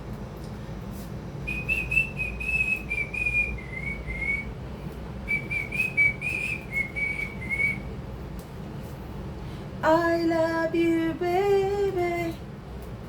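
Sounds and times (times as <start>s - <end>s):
person whistling a tune: 1.5s - 4.5s, 5.3s - 7.9s.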